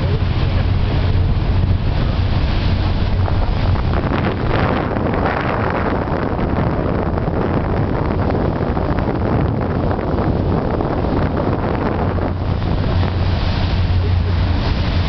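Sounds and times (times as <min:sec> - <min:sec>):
low rumble: 0:00.0 - 0:15.0
wind buffeting the microphone: 0:00.0 - 0:15.0.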